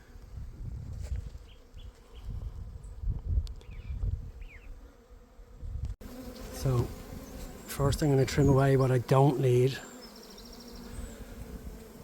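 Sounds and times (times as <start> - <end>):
honey bees buzzing: 4.3 - 12.0.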